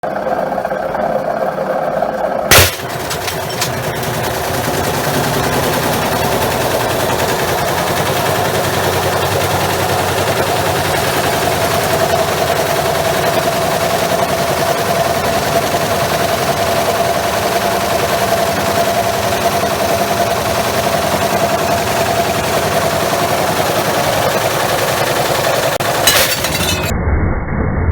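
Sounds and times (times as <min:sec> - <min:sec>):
washing machine motor whine: 0:00.1 - 0:26.1
glass breaking crash: 0:02.5 - 0:04.4, 0:25.8 - 0:26.9
brick rattling in washing machine drum: 0:02.5 - 0:07.2, 0:25.8 - 0:26.9.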